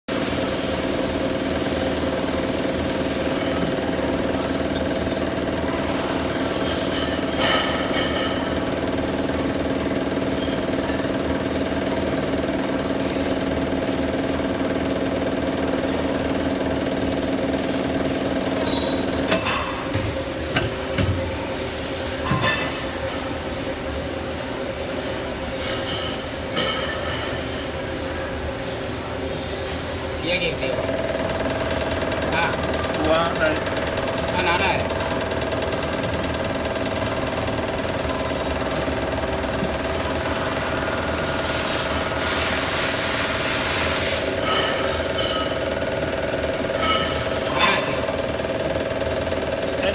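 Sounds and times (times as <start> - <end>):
machine humming: 28.1 - 49.9.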